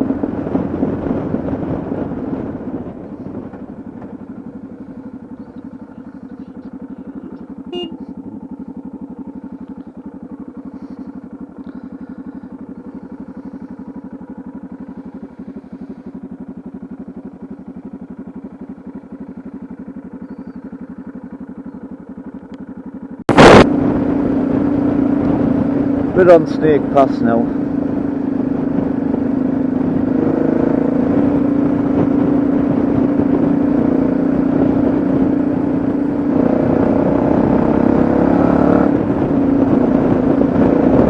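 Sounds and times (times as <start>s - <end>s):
motorcycle engine cruising: 0.0s - 41.0s.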